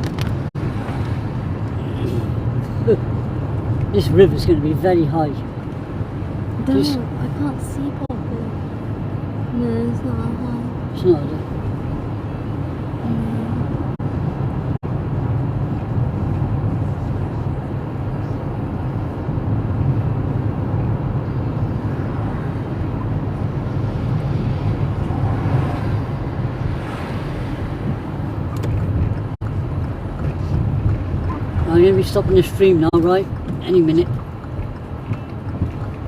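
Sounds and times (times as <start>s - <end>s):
car engine and tyre rumble: 0.0s - 36.0s.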